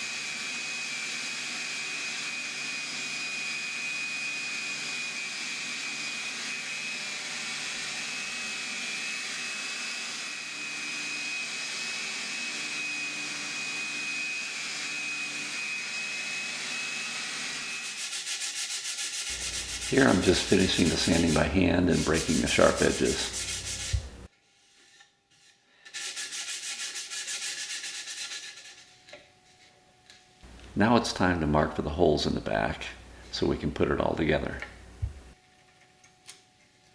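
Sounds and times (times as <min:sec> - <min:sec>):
electric power sander on wood: 0:00.0 - 0:24.3.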